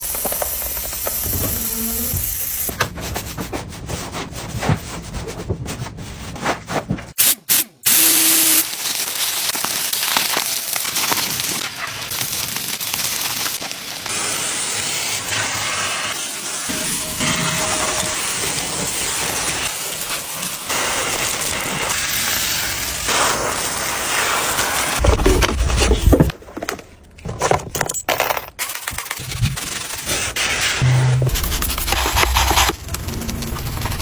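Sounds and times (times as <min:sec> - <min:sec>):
pressure washer spraying water: 0:07.2 - 0:25.0.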